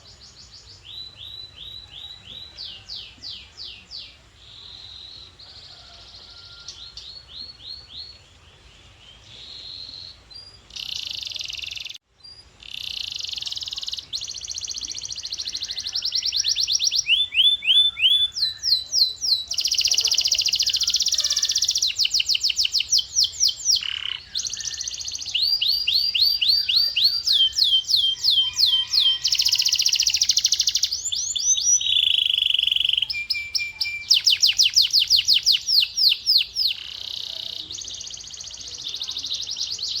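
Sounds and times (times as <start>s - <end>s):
canary singing trills: 0.0s - 40.0s.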